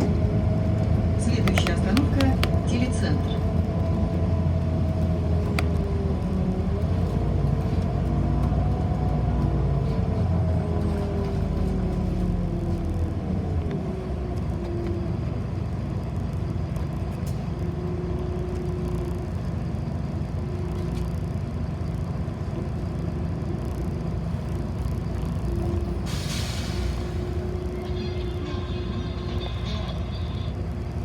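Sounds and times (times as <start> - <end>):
bus engine drone: 0.0 - 31.0
bus motor whine: 0.0 - 31.0.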